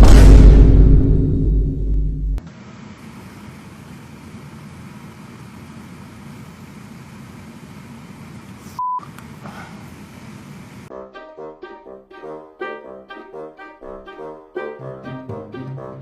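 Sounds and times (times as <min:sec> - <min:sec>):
low rumbling hum: 0:00.0 - 0:02.4.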